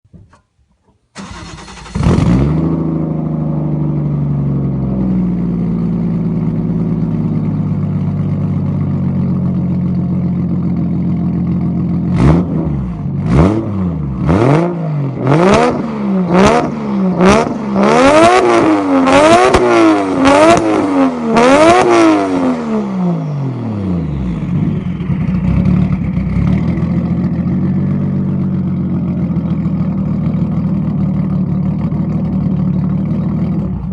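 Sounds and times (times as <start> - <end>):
car engine starting and idling: 0.1 - 33.9
car engine revving: 1.2 - 5.9, 12.1 - 33.9.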